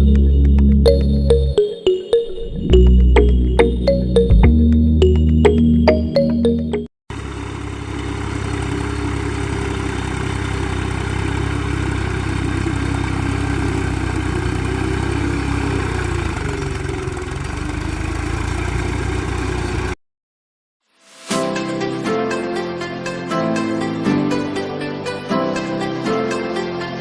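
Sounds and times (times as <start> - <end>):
engine idling: 7.1 - 20.0.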